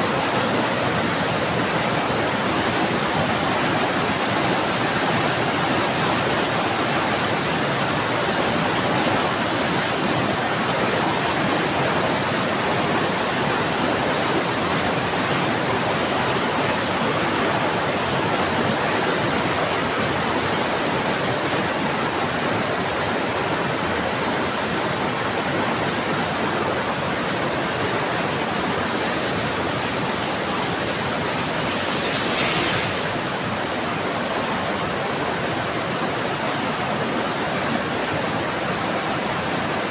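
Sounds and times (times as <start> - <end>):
heavy rain falling: 28.3 - 34.3
sharp loud hiss: 30.2 - 33.8.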